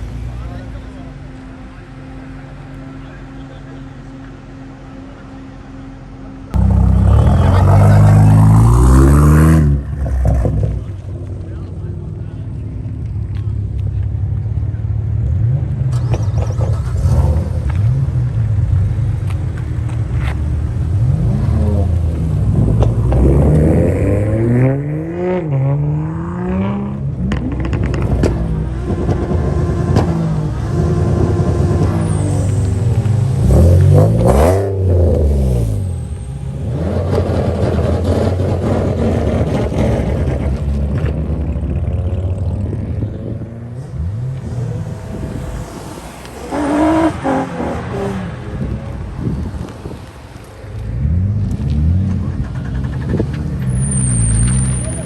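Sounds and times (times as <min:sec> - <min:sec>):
car engine accelerating hard: 0:00.0 - 0:55.0
sharp exhaust cracks: 0:27.3 - 0:55.0
loud pitched tone: 0:43.8 - 0:48.8.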